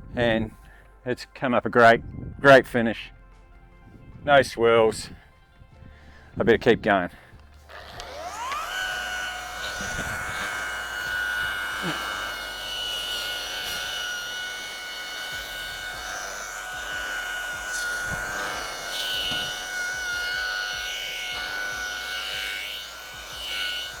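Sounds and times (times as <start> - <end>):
electric polisher motor whine: 7.4 - 24.0.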